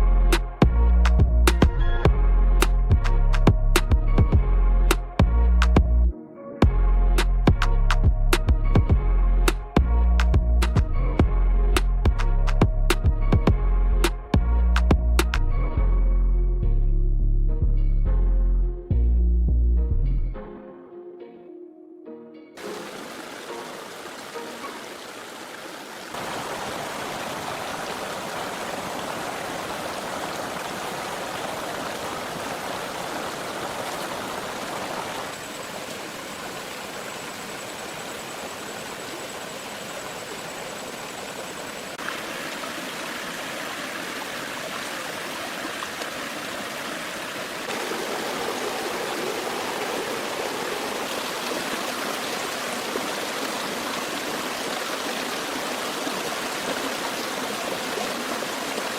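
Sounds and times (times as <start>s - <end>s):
stream water flowing: 22.6s - 58.9s.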